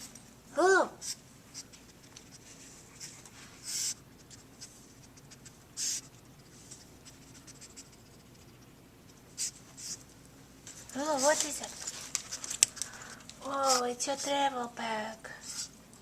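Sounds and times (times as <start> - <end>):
short hissy bursts: 3.6 - 4.0, 5.8 - 6.1
light scratching: 10.7 - 14.5.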